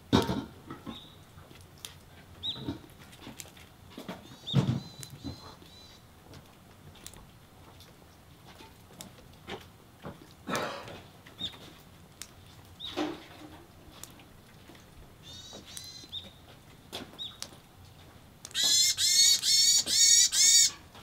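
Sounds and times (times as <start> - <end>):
bird giving nasal calls: 18.5 - 20.8.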